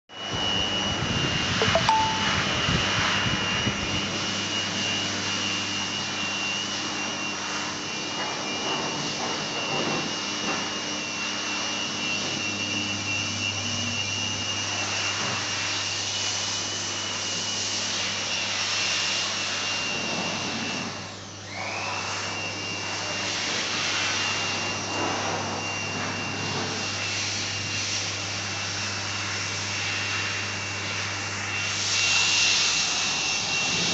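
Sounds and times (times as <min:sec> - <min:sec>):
high steady tone: 0:01.6 - 0:02.7
laser welding machine whine and hiss: 0:02.6 - 0:33.9.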